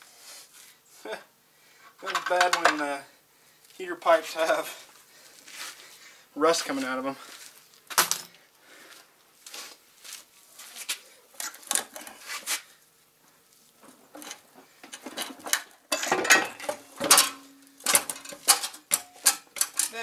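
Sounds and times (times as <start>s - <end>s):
metal parts clinking and knocking: 2.0s - 2.8s, 14.2s - 20.0s
metal scraping and clanking: 2.0s - 2.8s, 14.1s - 20.0s.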